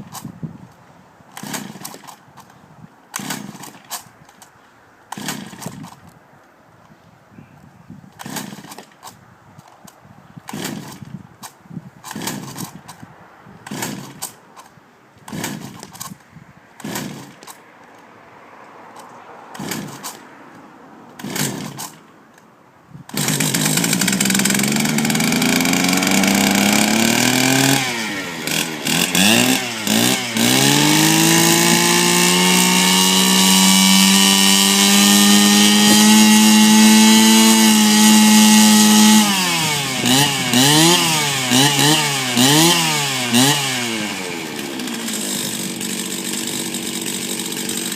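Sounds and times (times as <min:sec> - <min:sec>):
brushcutter engine revving: 0:01.4 - 0:02.2, 0:03.2 - 0:03.9, 0:05.1 - 0:06.0, 0:08.2 - 0:09.0, 0:10.5 - 0:11.0, 0:12.1 - 0:12.8, 0:13.7 - 0:14.3, 0:15.3 - 0:16.1, 0:16.8 - 0:17.6, 0:19.5 - 0:20.2, 0:21.2 - 0:22.0, 0:23.1 - 0:47.9
brushcutter starter pulls: 0:01.4 - 0:04.5, 0:05.1 - 0:06.2, 0:08.2 - 0:13.0, 0:13.6 - 0:14.7, 0:15.3 - 0:16.2, 0:16.8 - 0:17.6, 0:19.0 - 0:20.2, 0:21.2 - 0:22.5, 0:23.1 - 0:47.9.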